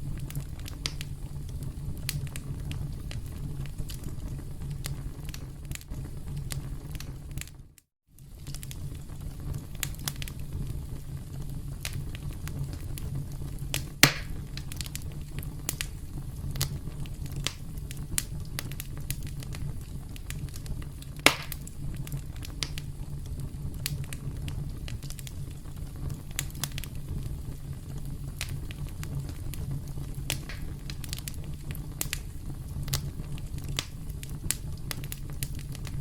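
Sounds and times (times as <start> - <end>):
campfire flames rumbling: 0.0 - 36.0
fire snaps and pops: 0.0 - 36.0.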